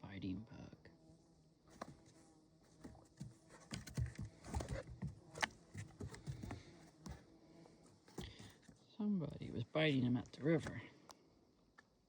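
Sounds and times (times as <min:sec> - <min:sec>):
dog paws tapping on wooden boards: 0:02.8 - 0:07.2.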